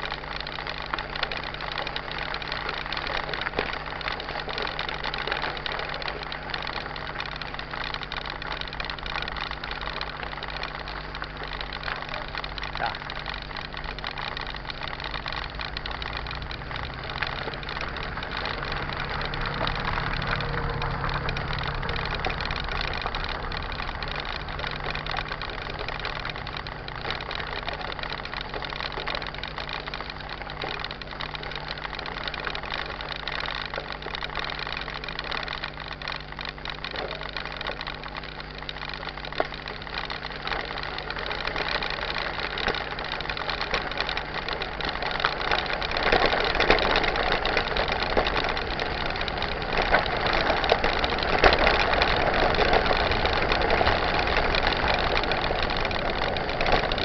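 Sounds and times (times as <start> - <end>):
mountain bike rumbling and rattling: 0.0 - 57.0.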